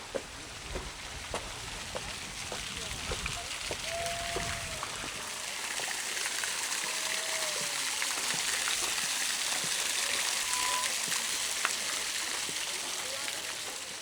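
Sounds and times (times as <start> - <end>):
flowing water hiss: 0.0 - 14.0
faint short tones: 10.4 - 11.0.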